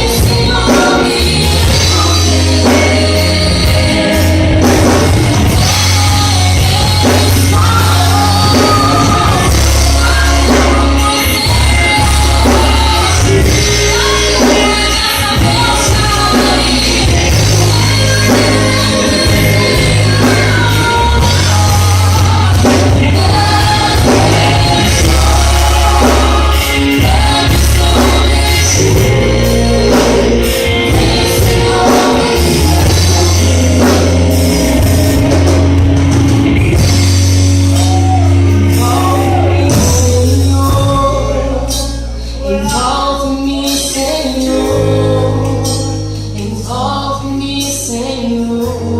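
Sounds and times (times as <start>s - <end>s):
choir singing: 0.0s - 35.8s
band with bass and drums: 0.0s - 48.9s.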